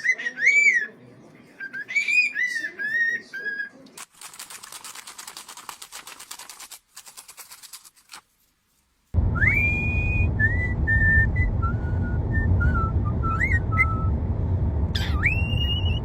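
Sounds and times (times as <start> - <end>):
fast sharp clicks: 4.0 - 8.2
bird whistling: 12.6 - 14.1, 15.0 - 16.0.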